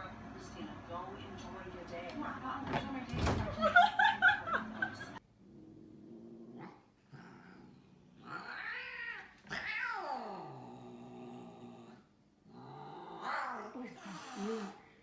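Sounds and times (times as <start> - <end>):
cat yowling: 8.3 - 10.4.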